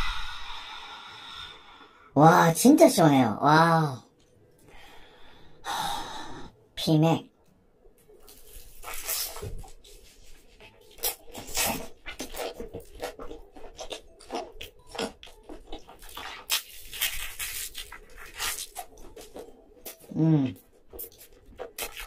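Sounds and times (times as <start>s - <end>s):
crunching and chewing: 8.0s - 22.0s
biting into pizza: 10.8s - 22.0s.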